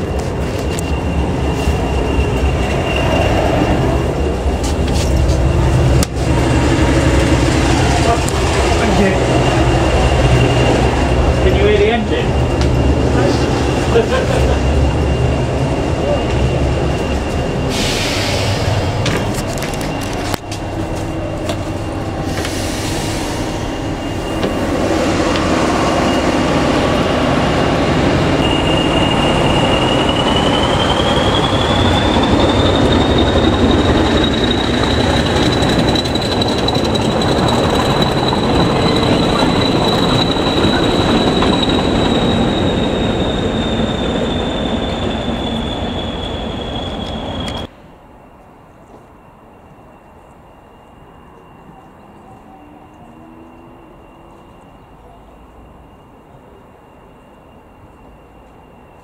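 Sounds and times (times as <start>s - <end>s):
high-pitched wheel squeal: 0.0s - 13.9s, 14.6s - 47.7s
train wheels rumbling: 0.0s - 50.3s.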